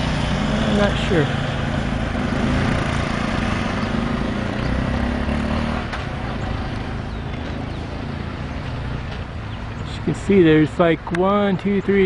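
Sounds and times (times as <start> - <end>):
hum of passing traffic: 0.0 - 12.0
vehicle engine running close by: 0.0 - 12.0.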